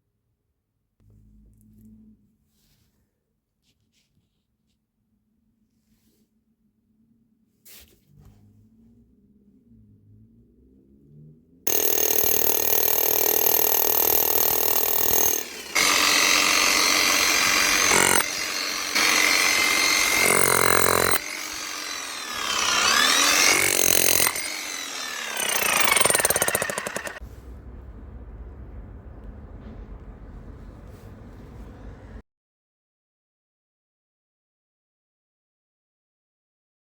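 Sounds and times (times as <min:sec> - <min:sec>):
rotary hammer running: 0:11.7 - 0:27.2.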